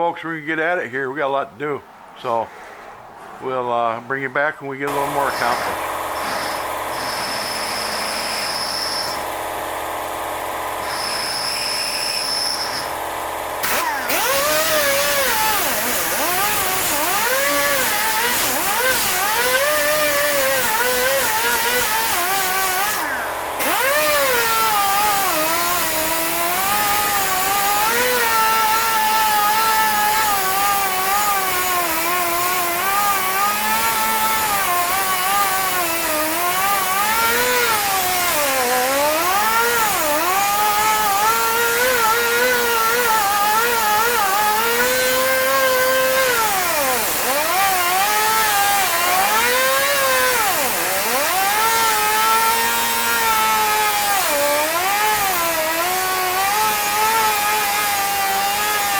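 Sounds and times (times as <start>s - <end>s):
electric drill whining under load: 4.9s - 58.9s.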